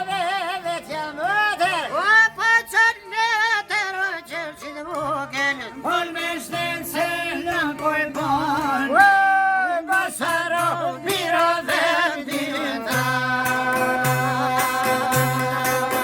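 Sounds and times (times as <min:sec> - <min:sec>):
person singing folk song: 0:00.0 - 0:16.0.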